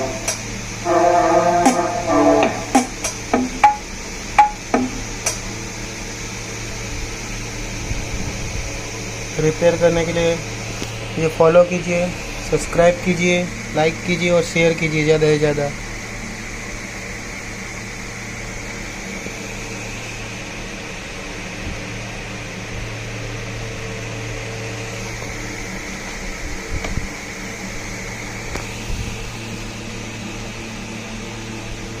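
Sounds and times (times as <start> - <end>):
machine hum with hiss: 0.0 - 32.0.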